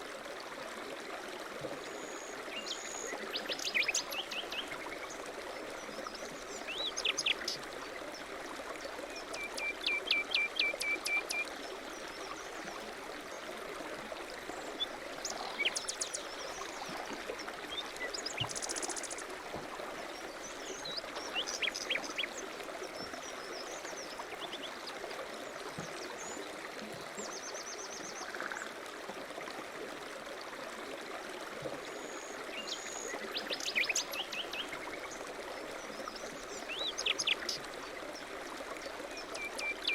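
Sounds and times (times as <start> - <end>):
songbirds chirping and trilling: 20.1 - 22.4.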